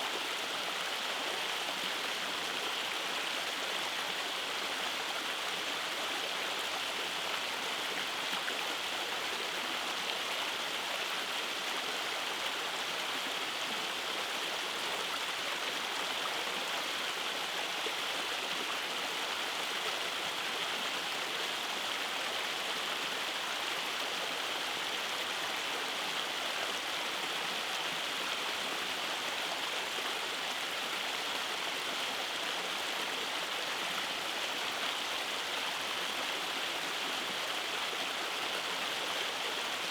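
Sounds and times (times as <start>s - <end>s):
stream over small waterfalls: 0.0s - 39.9s.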